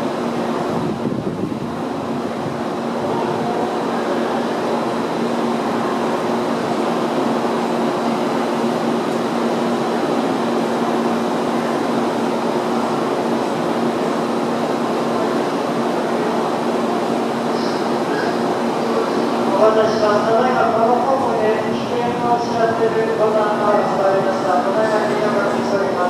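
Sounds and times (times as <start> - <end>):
train equipment hum and whir: 0.0 - 26.0.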